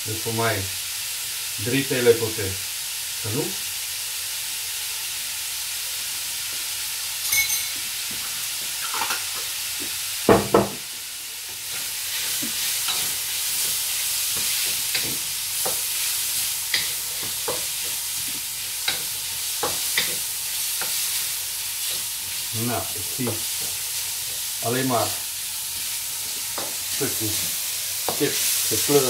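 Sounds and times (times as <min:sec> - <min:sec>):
chicken sizzling in a wok: 0:00.0 - 0:29.0
ringing metallic clink: 0:07.2 - 0:07.8
wok knocking on stove grate: 0:10.3 - 0:10.9.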